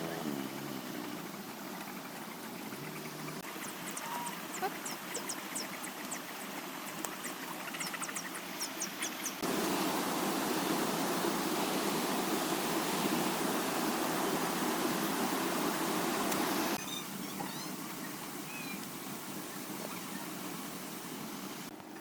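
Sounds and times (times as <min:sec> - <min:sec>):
steady rushing noise: 0:09.4 - 0:16.8.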